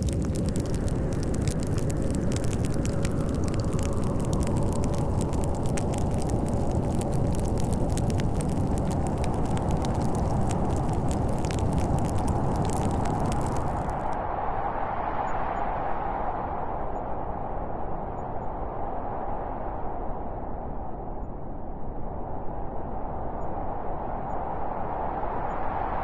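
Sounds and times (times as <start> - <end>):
log fire crackling: 0.0 - 14.2
snowstorm wind: 0.0 - 26.0.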